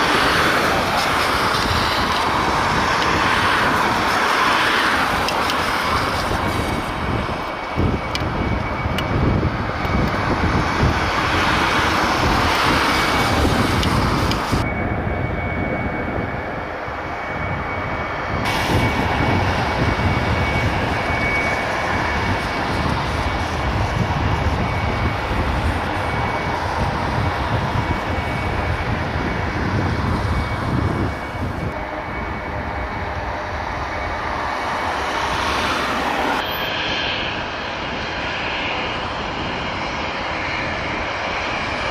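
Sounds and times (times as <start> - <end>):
jet engines running: 0.0 - 41.9.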